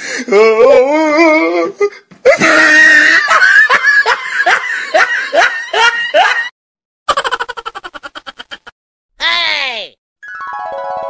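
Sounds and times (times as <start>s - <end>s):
high-pitched laughter: 7.1s - 8.7s.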